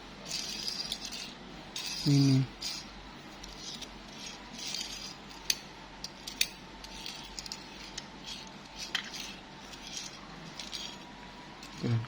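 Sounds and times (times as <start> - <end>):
toy car clicking and rattling: 3.5 - 11.0.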